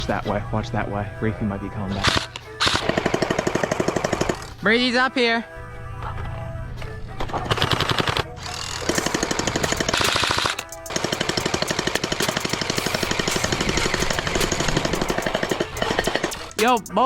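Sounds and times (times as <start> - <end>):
gel blaster firing full-auto: 8.8 - 16.6.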